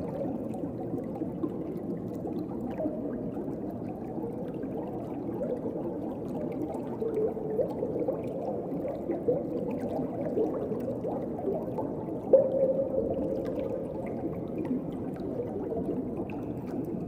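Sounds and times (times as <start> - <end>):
small bubbling sounds: 0.0 - 17.0
underwater wash of water: 0.0 - 17.0.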